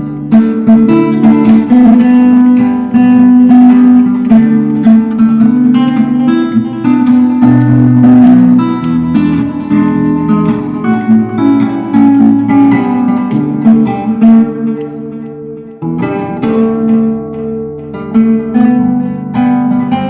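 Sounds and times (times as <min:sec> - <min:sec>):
acoustic guitar music: 0:00.0 - 0:20.0.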